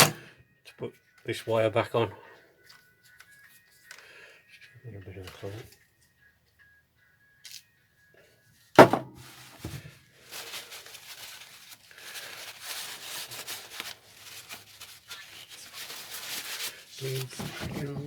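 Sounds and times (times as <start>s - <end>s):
sharp knock: 8.8s - 9.2s.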